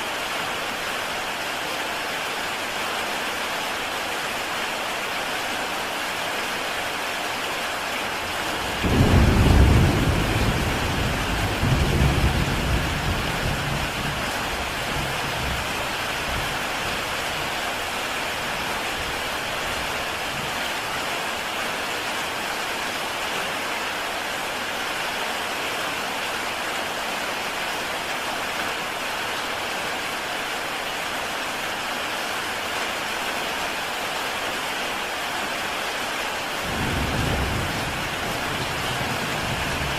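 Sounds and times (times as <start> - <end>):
heavy rain on a tile roof: 0.0 - 39.9
thunder rumbling: 8.6 - 16.6, 36.7 - 39.9.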